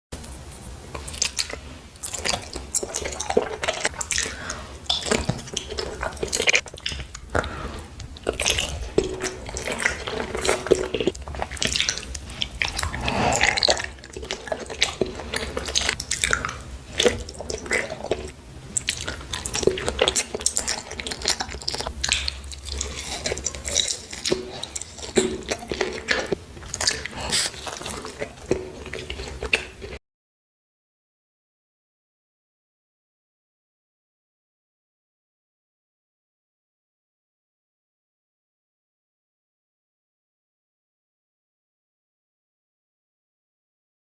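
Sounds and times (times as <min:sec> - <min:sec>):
raw corn being chewed: 0:00.2 - 0:30.0.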